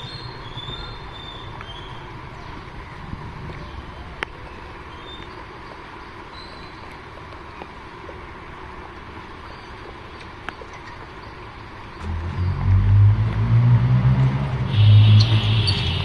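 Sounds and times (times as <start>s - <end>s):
quiet outdoor background: 0.0s - 16.0s
vehicle engine droning: 11.9s - 16.0s.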